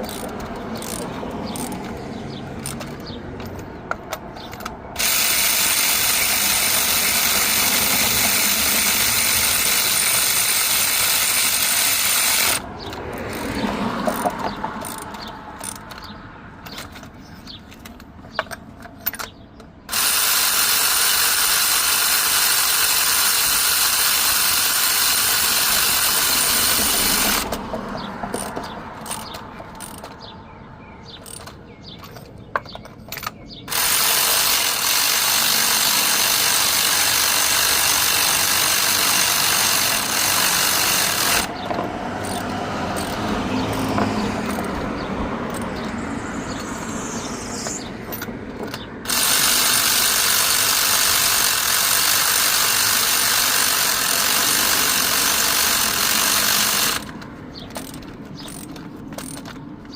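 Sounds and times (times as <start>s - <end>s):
tool-handling clicks: 0.0s - 20.1s, 23.9s - 30.3s, 31.1s - 46.7s, 47.5s - 59.9s
machine running: 5.0s - 12.6s, 42.2s - 57.2s.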